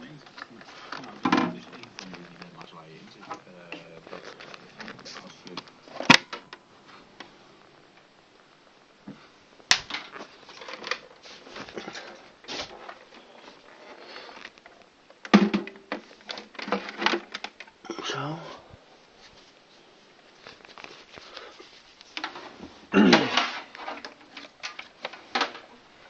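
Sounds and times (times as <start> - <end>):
radio clicks and plastic rattles: 0.1 - 8.1, 9.7 - 17.8, 20.4 - 22.6, 23.3 - 26.0.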